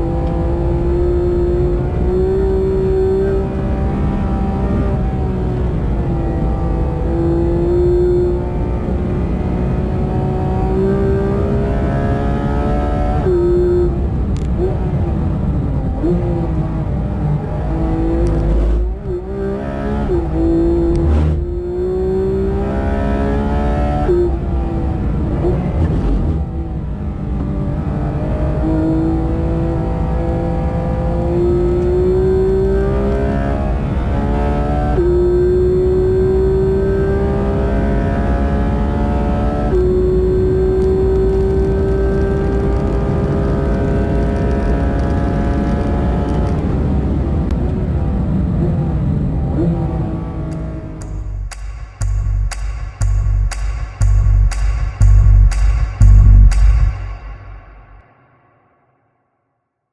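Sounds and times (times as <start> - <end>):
sports car engine at high revs: 0.0 - 51.2
constant low rumble: 13.8 - 19.3, 40.8 - 58.2.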